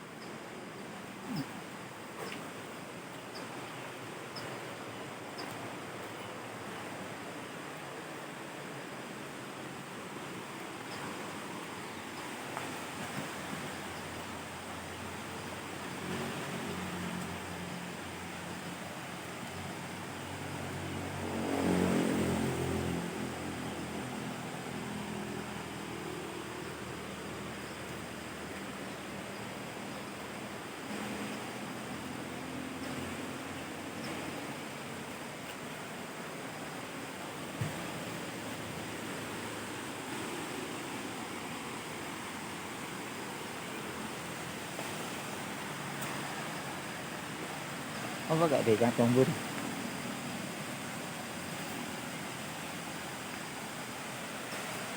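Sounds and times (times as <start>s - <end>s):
waterfall roaring: 14.2s - 54.9s
vehicle engine passing: 21.0s - 23.6s.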